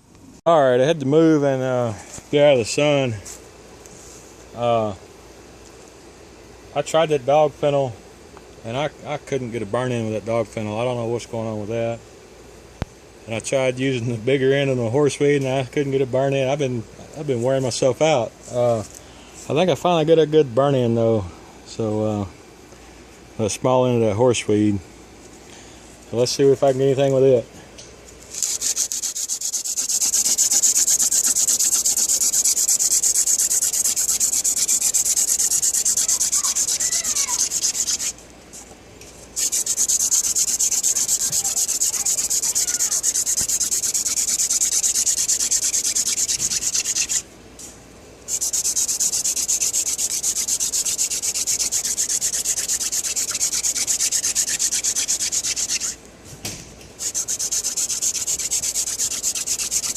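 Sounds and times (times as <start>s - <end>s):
wooden spindle rasping on fireboard: 28.2s - 38.7s, 39.3s - 47.2s, 48.3s - 56.0s, 57.0s - 59.9s.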